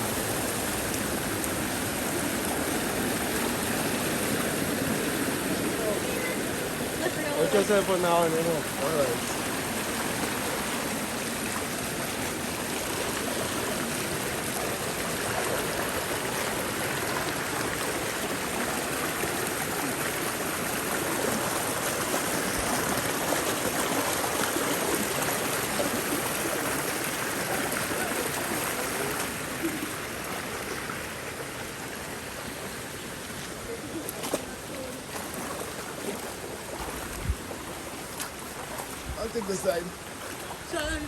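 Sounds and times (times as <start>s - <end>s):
river water rushing over stones: 0.0s - 41.0s.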